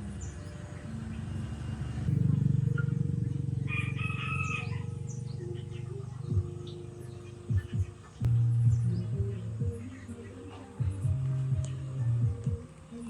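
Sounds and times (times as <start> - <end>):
drawn-out animal call: 0.0 - 8.2
steady low hum: 0.0 - 13.0.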